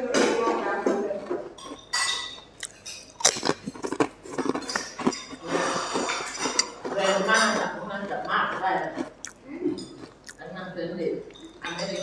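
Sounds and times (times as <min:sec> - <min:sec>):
cutlery clinking on a plate: 0:01.6 - 0:03.8, 0:04.4 - 0:07.8, 0:11.3 - 0:12.0
chewing and mouth noises: 0:02.6 - 0:10.5.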